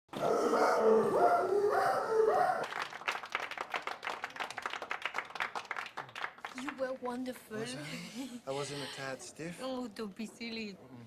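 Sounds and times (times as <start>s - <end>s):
audience clapping: 2.6s - 7.6s.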